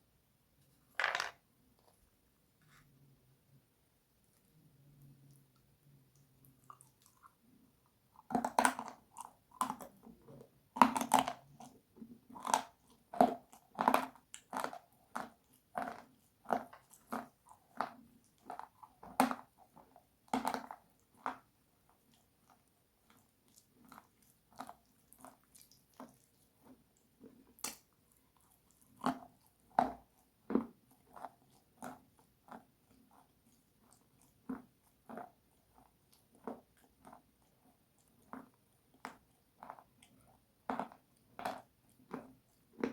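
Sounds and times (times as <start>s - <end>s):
crunchy chewing: 30.6s - 42.9s.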